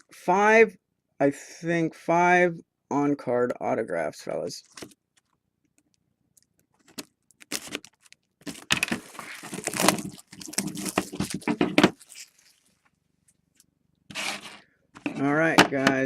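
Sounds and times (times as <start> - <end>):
wrapping rustling and crinkling: 4.6 - 14.6.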